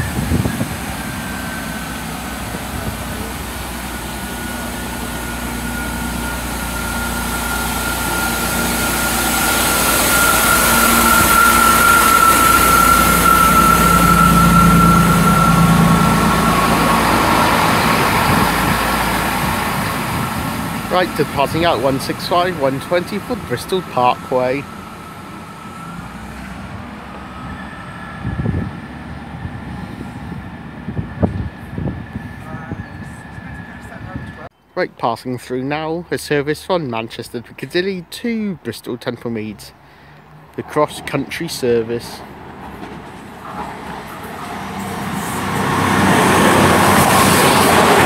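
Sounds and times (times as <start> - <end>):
train engine rumble: 0.0 - 48.0.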